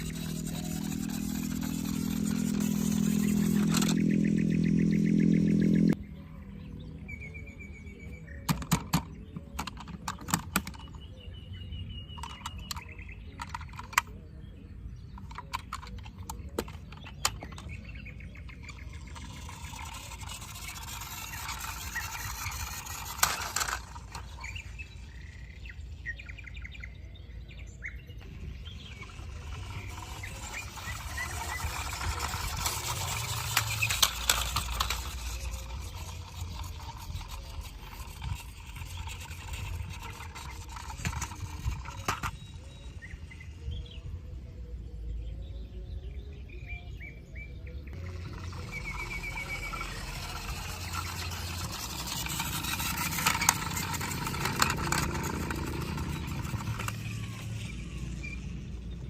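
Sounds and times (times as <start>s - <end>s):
birds chirping: 0.0s - 59.0s
sharp clicks and knocks: 8.4s - 11.0s.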